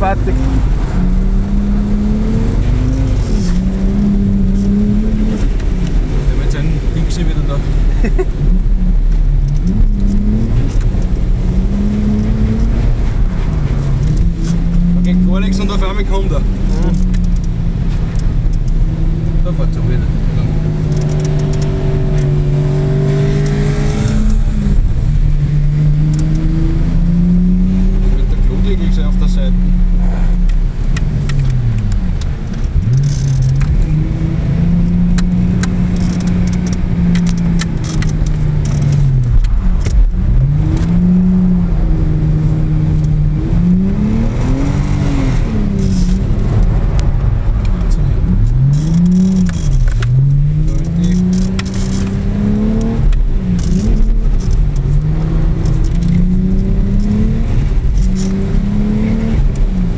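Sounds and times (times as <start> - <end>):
car engine revving: 0.0 - 59.9
light rattles and clicks: 12.2 - 22.4, 30.4 - 34.0, 34.8 - 41.0, 45.7 - 58.6.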